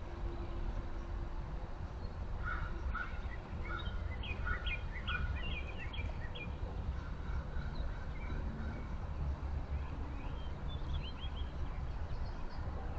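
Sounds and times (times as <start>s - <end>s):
birds chirping: 1.8s - 12.9s.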